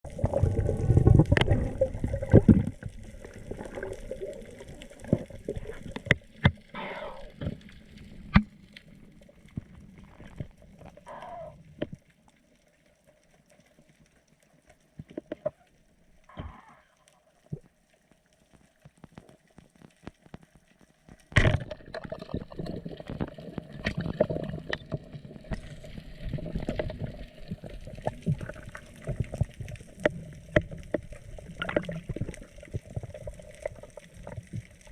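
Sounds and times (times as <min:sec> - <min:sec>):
bubbly gurgles: 0:00.0 - 0:11.8, 0:21.3 - 0:34.9
underwater rush of water: 0:00.0 - 0:34.9.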